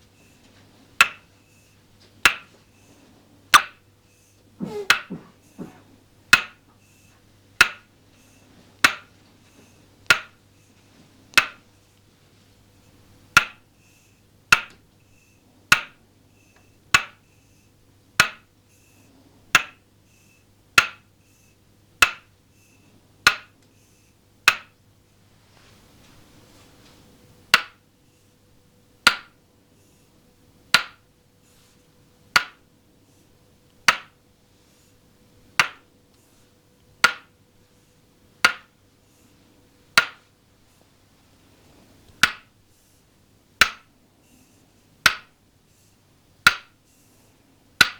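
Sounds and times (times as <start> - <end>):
wooden mallet tapping wooden peg: 1.0 - 1.3, 2.2 - 2.5, 3.5 - 3.8, 4.6 - 6.7, 7.6 - 7.9, 8.8 - 9.1, 10.0 - 10.4, 11.3 - 11.6, 13.3 - 13.6, 14.5 - 14.9, 15.7 - 16.0, 16.9 - 17.2, 18.2 - 18.5, 19.5 - 19.8, 20.7 - 21.1, 22.0 - 22.3, 23.2 - 23.6, 24.4 - 24.8, 27.5 - 27.8, 29.0 - 29.4, 30.7 - 31.0, 32.3 - 32.7, 33.8 - 34.2, 35.5 - 35.8, 37.0 - 37.3, 38.4 - 38.8, 40.0 - 40.2, 42.1 - 42.5, 43.6 - 43.9, 45.0 - 45.4, 46.4 - 46.8
soft rustle: 25.2 - 27.1.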